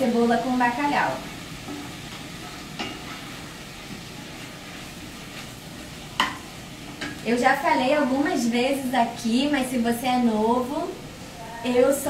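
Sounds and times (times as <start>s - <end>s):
food sizzling in pot: 0.0s - 12.0s
wooden spoon stirring: 0.8s - 7.2s.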